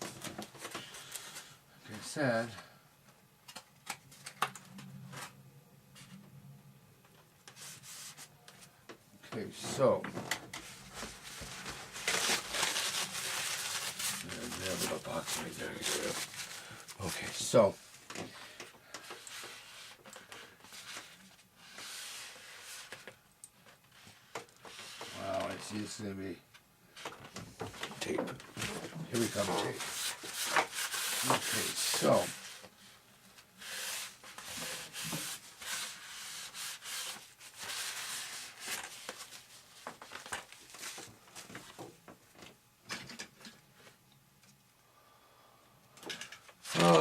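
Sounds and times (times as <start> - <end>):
hands rubbing tape: 29.1 - 32.7, 33.6 - 39.5.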